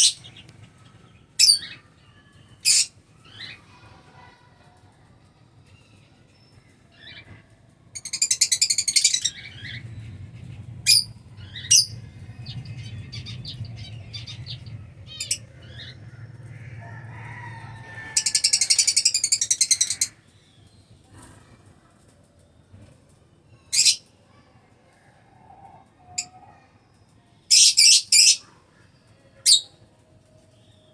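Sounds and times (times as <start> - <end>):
lovebirds shrill chattering: 2.6 - 3.6, 8.0 - 16.6, 17.8 - 20.2, 27.5 - 28.4.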